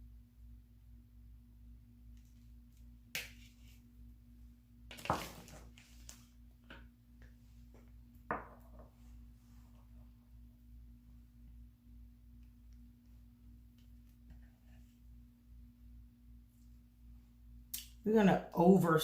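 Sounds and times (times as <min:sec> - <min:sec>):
steady low hum: 0:05.7 - 0:19.0.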